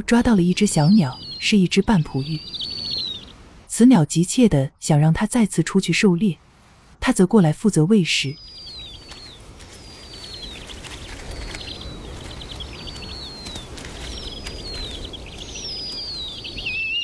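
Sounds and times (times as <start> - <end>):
low wind noise: 0.0 - 17.0
bird whistling with buzzy trill: 11.6 - 17.0.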